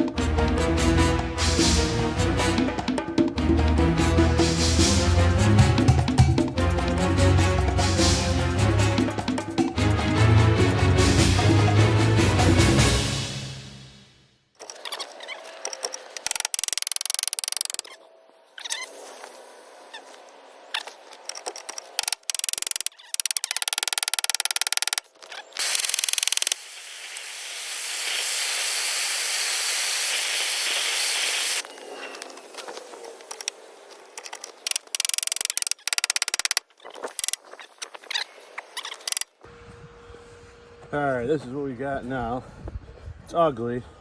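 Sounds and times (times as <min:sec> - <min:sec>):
welder crackling on sheet metal: 0:25.6 - 0:31.6
welder hiss: 0:25.6 - 0:31.6.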